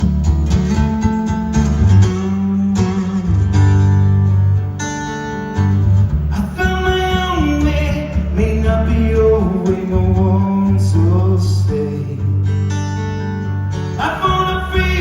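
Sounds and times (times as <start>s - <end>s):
acoustic guitar strumming: 0.0s - 15.0s
man singing: 6.3s - 12.5s, 14.0s - 15.0s.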